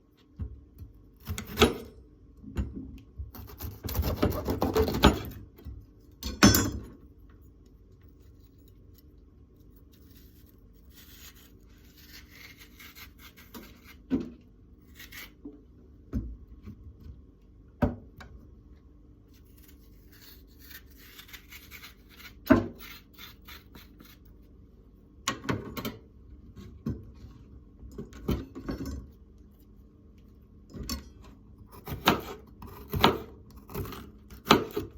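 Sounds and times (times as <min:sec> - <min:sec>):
knife scraping board: 0:03.4 - 0:05.4, 0:09.7 - 0:15.4, 0:19.4 - 0:24.4.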